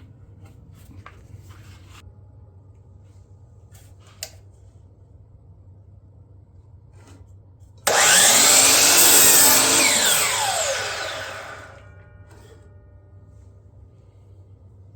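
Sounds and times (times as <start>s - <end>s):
miter saw motor running: 7.9s - 11.9s.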